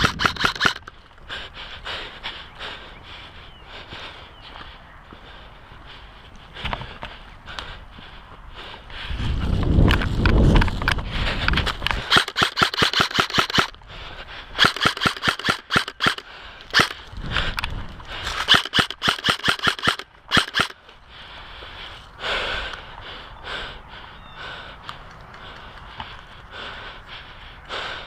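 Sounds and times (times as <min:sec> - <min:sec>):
airsoft guns firing: 0:00.0 - 0:00.9, 0:12.0 - 0:13.7, 0:14.6 - 0:17.0, 0:18.3 - 0:20.8.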